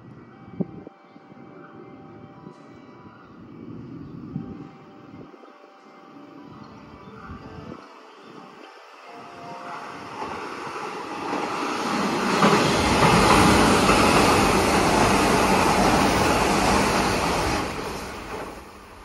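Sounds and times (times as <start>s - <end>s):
train wheels on rails: 9.2s - 19.0s.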